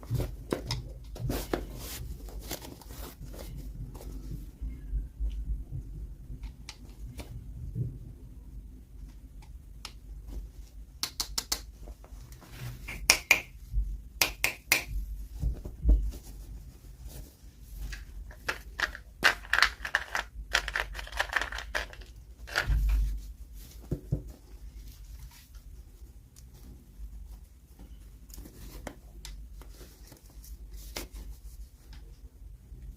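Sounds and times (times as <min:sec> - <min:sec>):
packaging crinkling and rustling: 0:17.9 - 0:23.1.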